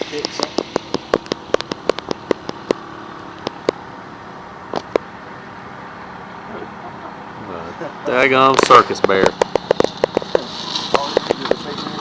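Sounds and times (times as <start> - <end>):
sharp clicks: 0.2 - 3.8, 8.5 - 11.6.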